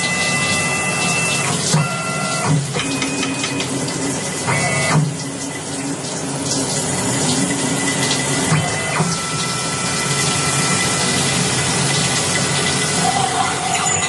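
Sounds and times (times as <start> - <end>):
stepped motor tones: 8.5 - 14.0.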